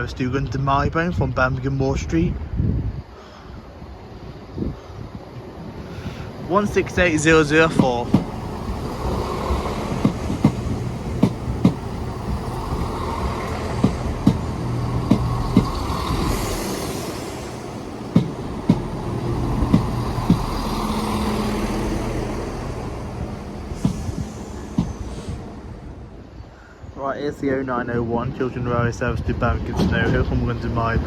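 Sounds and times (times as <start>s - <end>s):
diesel train engines humming: 2.8s - 31.0s
train wheels clicking over rail joints: 5.3s - 26.1s.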